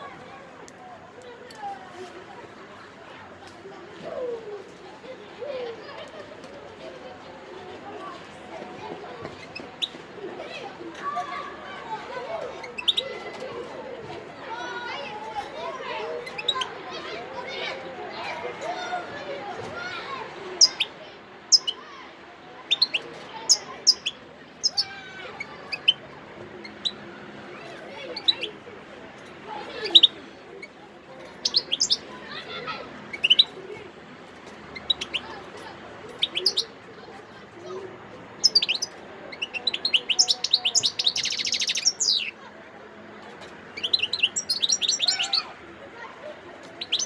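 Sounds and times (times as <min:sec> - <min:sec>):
goldfinch chirping: 0:12.7 - 0:13.1, 0:20.6 - 0:20.9, 0:21.5 - 0:21.8, 0:22.7 - 0:24.9, 0:25.7 - 0:26.0, 0:31.4 - 0:32.1, 0:33.1 - 0:33.5, 0:36.2 - 0:36.7, 0:38.4 - 0:42.3, 0:43.8 - 0:45.4, 0:46.8 - 0:47.0.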